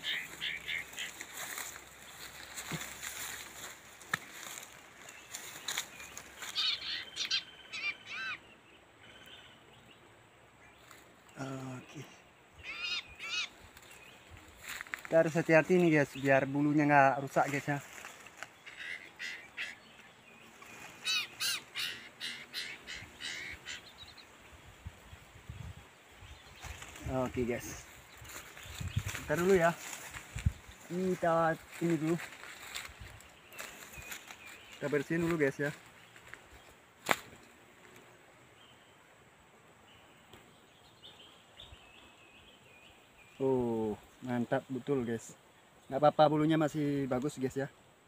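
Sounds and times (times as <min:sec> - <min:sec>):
bird short calls: 0:00.0 - 0:01.5, 0:06.4 - 0:08.5, 0:11.5 - 0:13.6, 0:18.6 - 0:20.0, 0:20.6 - 0:24.2
faint high bird chirps: 0:05.2 - 0:10.0, 0:12.5 - 0:14.2.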